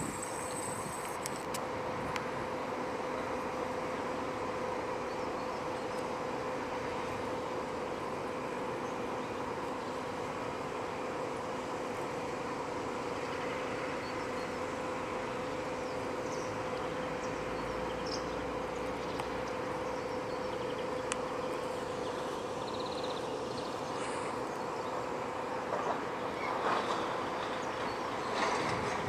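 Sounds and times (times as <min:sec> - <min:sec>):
wind noise: 0:00.0 - 0:02.2, 0:28.4 - 0:29.0
ship machinery humming: 0:00.0 - 0:29.0.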